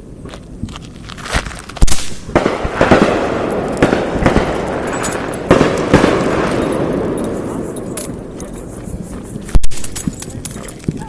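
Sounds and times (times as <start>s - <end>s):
fireworks crackling and popping: 0.0s - 11.0s
fireworks sharp bang: 1.8s - 8.4s.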